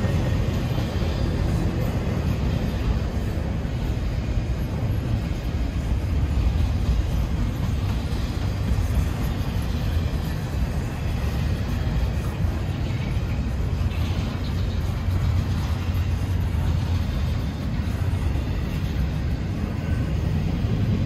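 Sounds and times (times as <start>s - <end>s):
freight train rumbling past: 0.0s - 21.0s.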